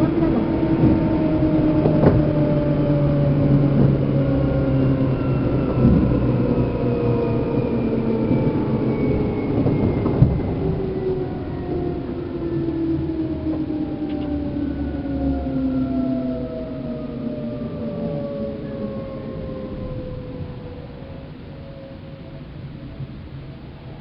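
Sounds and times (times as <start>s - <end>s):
train motor and gear whine: 0.0s - 24.0s.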